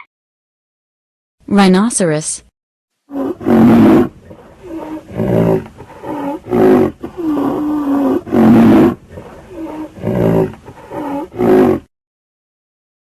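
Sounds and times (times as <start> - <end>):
rhinoceros calling: 3.1 - 11.9.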